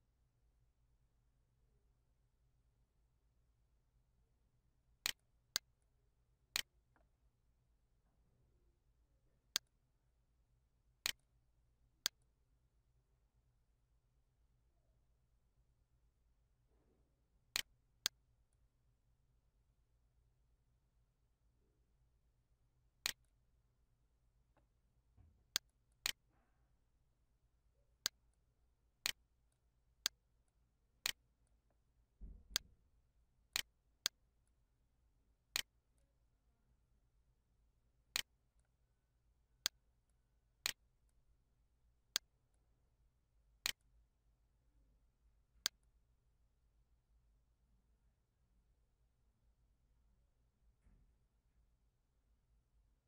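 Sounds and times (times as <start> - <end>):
soft low thump: 32.2 - 32.7.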